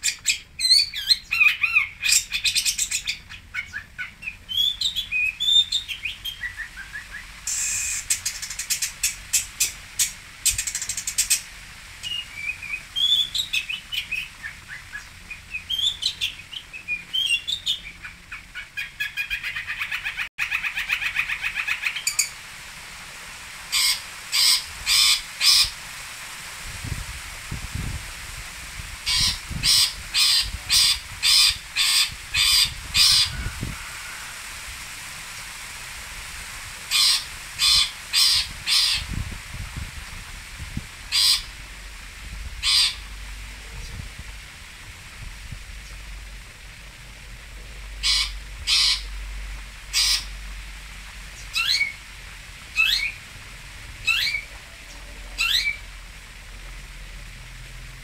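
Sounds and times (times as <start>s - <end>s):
bird harsh calls: 0.0s - 11.4s, 12.0s - 22.4s, 23.7s - 25.8s, 29.0s - 34.4s, 36.9s - 39.1s, 41.1s - 41.5s, 42.6s - 43.1s, 48.0s - 49.1s, 49.9s - 50.3s, 51.4s - 52.0s, 52.8s - 53.2s, 54.0s - 55.8s.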